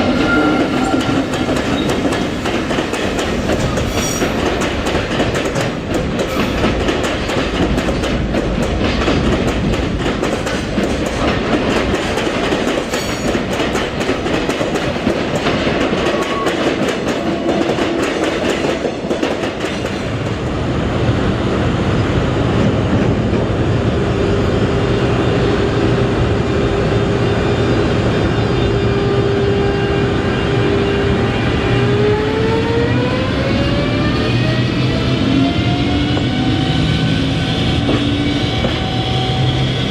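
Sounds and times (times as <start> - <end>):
train rolling noise: 0.0 - 39.9
train wheels clicking over rail joints: 0.2 - 20.5, 37.7 - 39.7.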